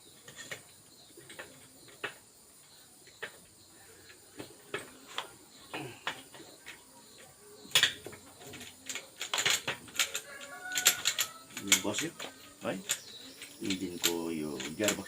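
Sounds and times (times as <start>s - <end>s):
metal gears clinking and knocking: 8.5s - 15.0s.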